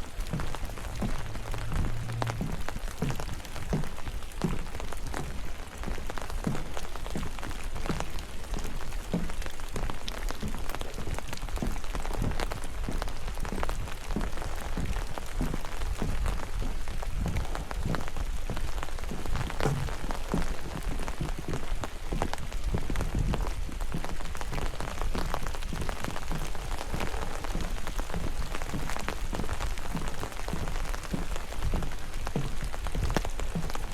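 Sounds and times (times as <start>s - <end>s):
footsteps on wet path: 0.0s - 33.9s
steady rain: 0.0s - 33.9s
sharp drip ticks: 0.3s - 7.3s.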